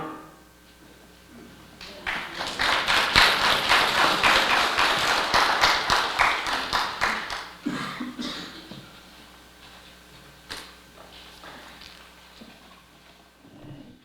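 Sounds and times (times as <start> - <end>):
audience applauding: 1.8 - 7.8.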